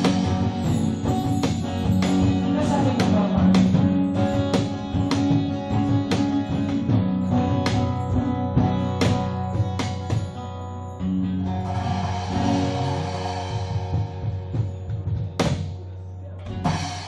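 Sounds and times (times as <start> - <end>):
acoustic guitar strumming: 0.0 - 13.2.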